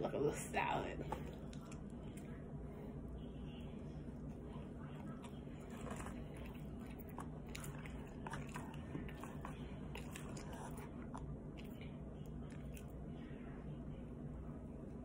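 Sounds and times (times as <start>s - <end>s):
steady low hum: 0.0s - 15.0s
chewing and biting food: 1.1s - 2.4s, 4.3s - 13.0s.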